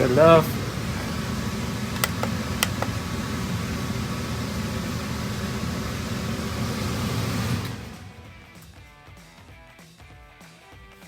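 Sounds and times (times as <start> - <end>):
air conditioner humming: 0.0 - 8.2
light clicks: 2.0 - 3.0.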